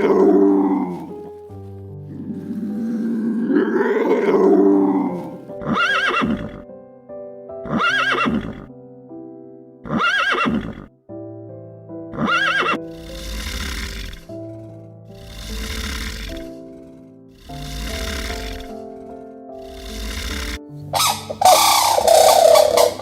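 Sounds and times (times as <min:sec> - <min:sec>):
background music: 0:00.0 - 0:23.0
horse whinnying: 0:02.6 - 0:06.6, 0:07.7 - 0:08.7, 0:09.9 - 0:10.9, 0:12.2 - 0:14.6, 0:15.2 - 0:16.7, 0:17.4 - 0:18.9, 0:19.6 - 0:23.0.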